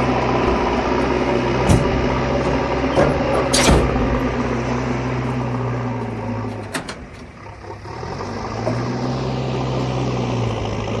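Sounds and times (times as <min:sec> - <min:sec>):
excavator diesel engine running: 0:00.0 - 0:11.0
sharp clanks: 0:01.6 - 0:04.5.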